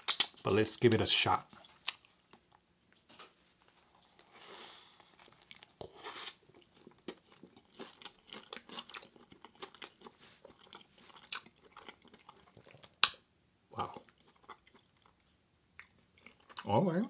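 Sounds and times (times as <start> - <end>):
wet mouth clicks: 0.0 - 0.4
person biting and chewing crunchily: 4.9 - 13.2.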